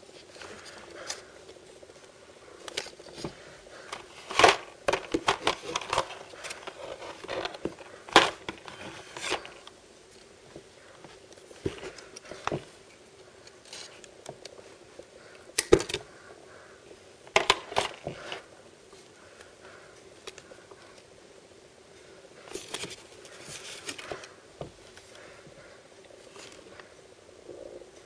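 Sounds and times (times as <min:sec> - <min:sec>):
packaging clicks and taps: 0:02.6 - 0:09.7, 0:17.3 - 0:18.4
plastic wrapping crinkling: 0:02.7 - 0:09.7.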